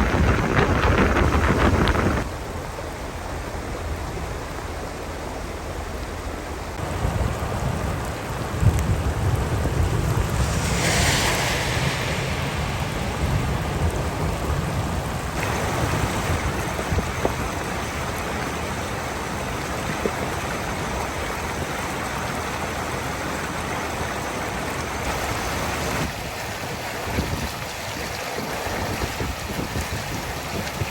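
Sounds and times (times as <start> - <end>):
wind buffeting microphone: 0.0 - 2.3, 6.8 - 18.8, 25.8 - 30.9
heavy rain falling: 0.0 - 30.9.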